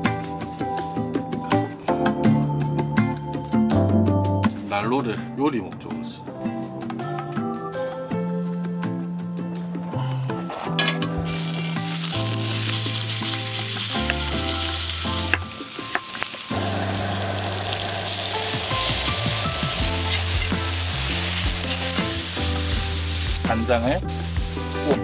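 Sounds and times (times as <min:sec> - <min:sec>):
background music with bass line: 0:00.0 - 0:25.0
food sizzling in a pan: 0:10.6 - 0:25.0.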